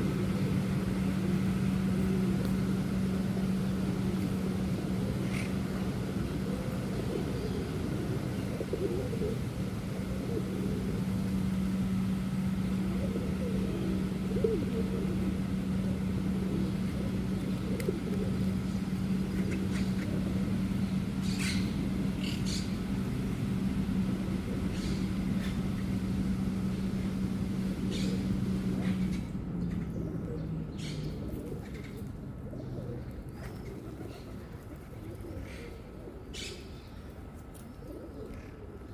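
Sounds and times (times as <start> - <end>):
low motor hum: 0.0 - 38.9
harsh bird calls: 12.4 - 23.0, 24.4 - 25.9, 27.8 - 32.0.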